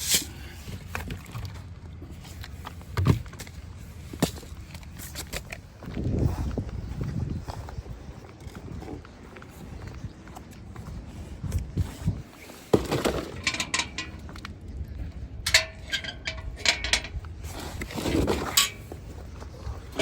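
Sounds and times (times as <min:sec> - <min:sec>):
clatter of knocks and clinks: 0:13.0 - 0:14.4, 0:15.5 - 0:17.2.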